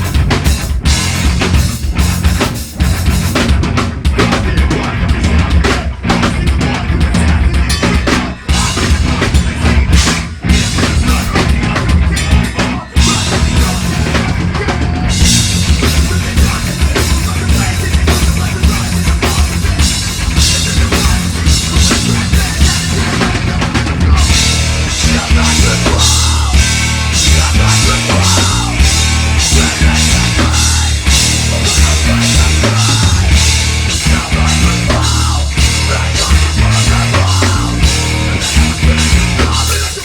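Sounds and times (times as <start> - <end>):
heavy metal band playing live: 0.0 - 40.0.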